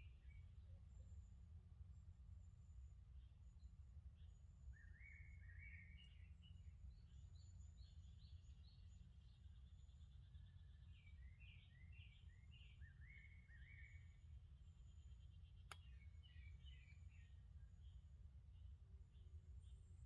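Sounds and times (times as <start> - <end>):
songbirds chirping: 4.2 - 20.0.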